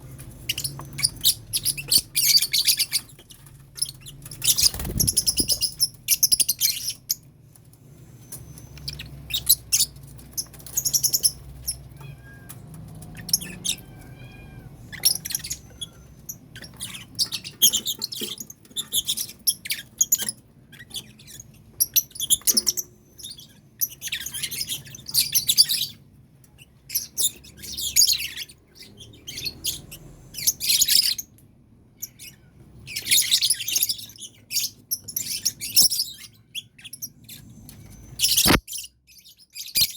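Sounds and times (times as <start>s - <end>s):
lovebirds chattering shrilly: 0.4s - 7.2s, 8.3s - 12.5s, 13.1s - 26.0s, 38.1s - 39.9s.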